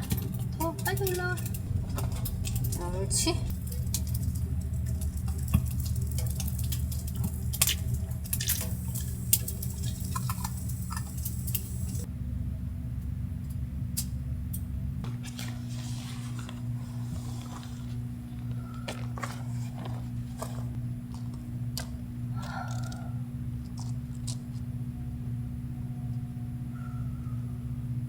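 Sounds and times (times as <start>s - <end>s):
water drips: 0.0s - 12.1s
steady low hum: 0.0s - 28.0s.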